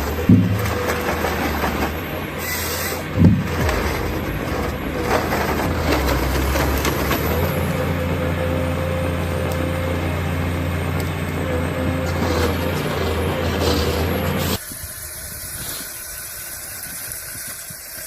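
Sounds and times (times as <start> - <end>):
engine whine: 0.0 - 14.6
heavy machine engine running: 0.0 - 14.6.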